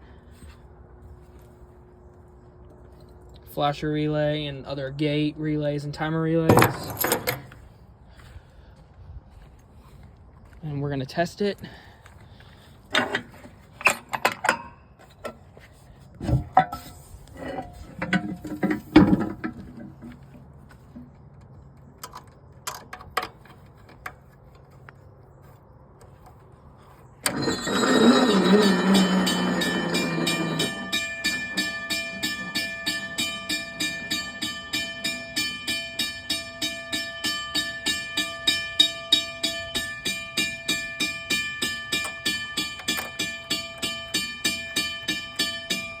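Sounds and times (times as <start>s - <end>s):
railroad crossing bell ringing: 27.2s - 46.0s.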